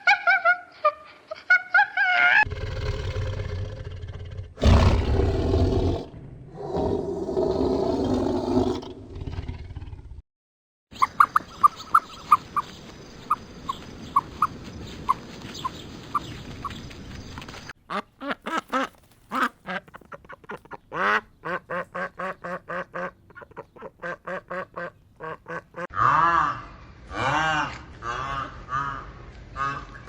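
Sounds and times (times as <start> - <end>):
nasal quack-like calls: 17.9 - 30.0.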